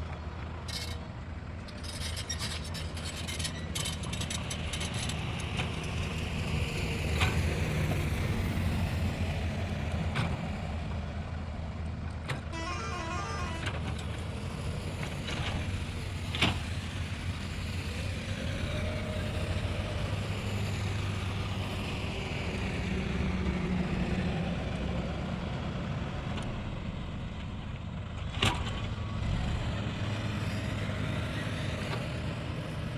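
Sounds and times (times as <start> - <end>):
tractor diesel engine running: 7.7 - 28.2.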